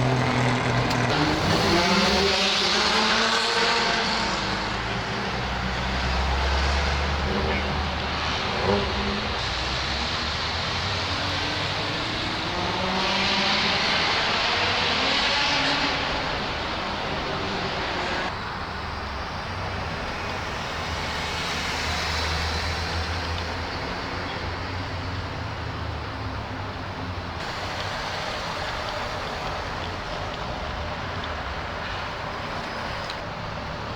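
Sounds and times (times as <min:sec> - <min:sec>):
car pulling past: 0:00.0 - 0:26.3
car engines running: 0:00.0 - 0:33.9.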